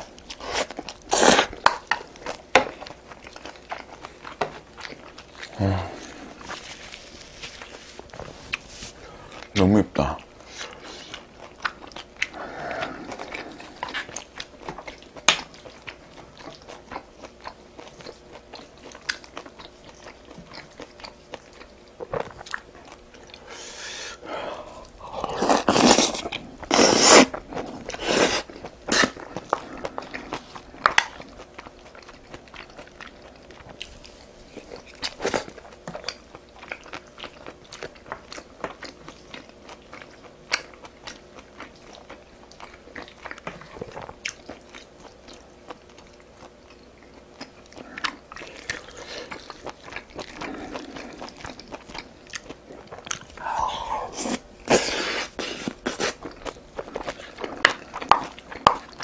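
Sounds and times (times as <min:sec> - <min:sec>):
person chewing with mouth clicks: 0:10.1 - 0:59.0.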